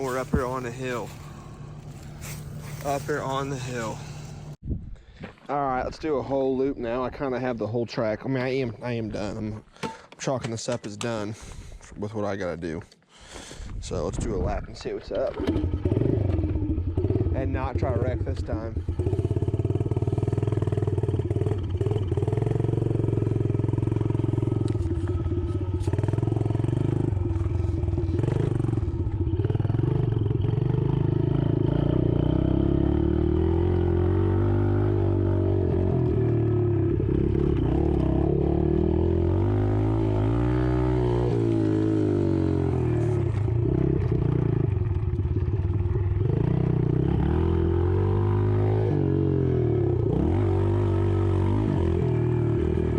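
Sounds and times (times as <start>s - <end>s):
dirt bike engine revving: 0.0s - 4.6s, 15.4s - 52.9s.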